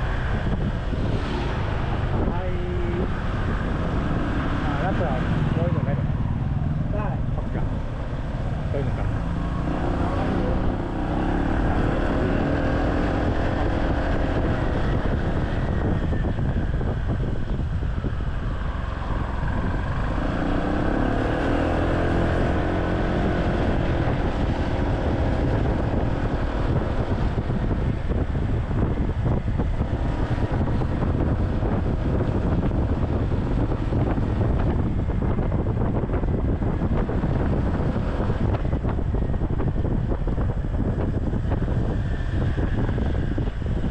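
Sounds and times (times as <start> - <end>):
wind on microphone: 0.0 - 43.9.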